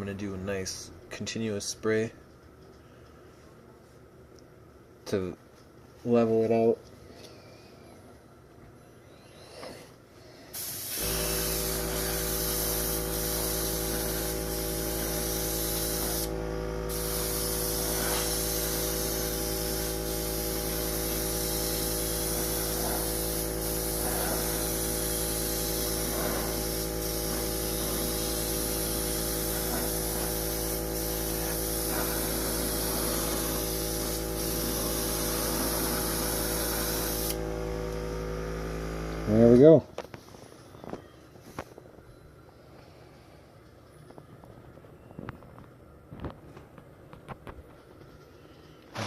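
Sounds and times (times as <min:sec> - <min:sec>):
airbrush spraying hiss: 0:10.5 - 0:37.6.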